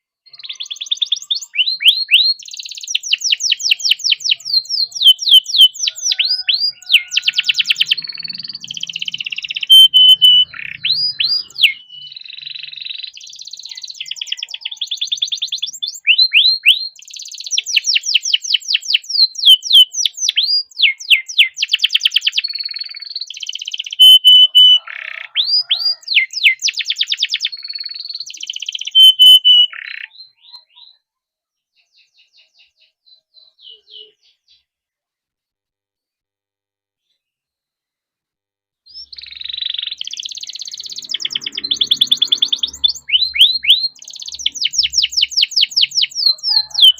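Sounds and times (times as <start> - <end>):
canary singing: 0.2 - 31.1, 31.8 - 34.7, 38.9 - 46.9.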